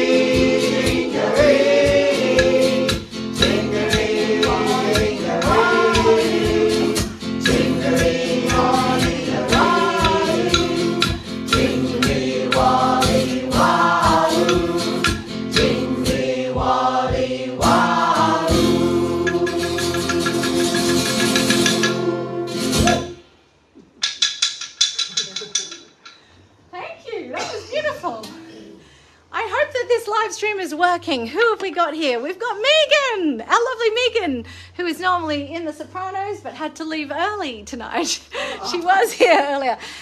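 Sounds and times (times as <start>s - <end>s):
choir singing: 0.0s - 23.2s
rhythmic instrumental accompaniment: 0.0s - 26.3s.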